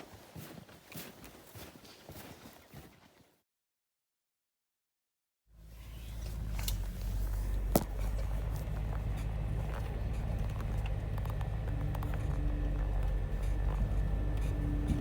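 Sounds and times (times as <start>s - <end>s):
truck engine rumbling: 5.6s - 15.0s.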